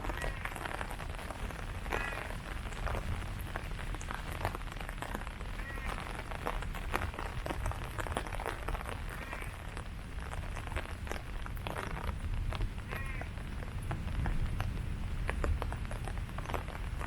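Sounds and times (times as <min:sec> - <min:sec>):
faint animal calls: 0:00.0 - 0:00.6, 0:01.8 - 0:02.3, 0:05.6 - 0:06.1, 0:09.1 - 0:09.6, 0:12.9 - 0:13.4
rain falling on leaves: 0:00.0 - 0:17.0.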